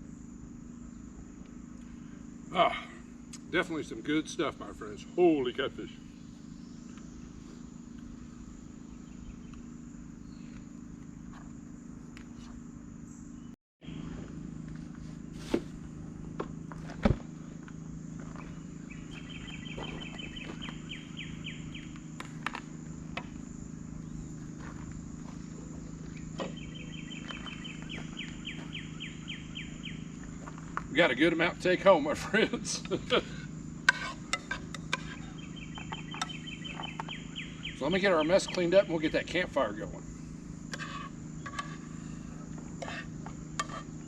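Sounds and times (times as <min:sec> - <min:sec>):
insect pulsed trill: 0:00.0 - 0:44.0
steady low hum: 0:00.0 - 0:44.0.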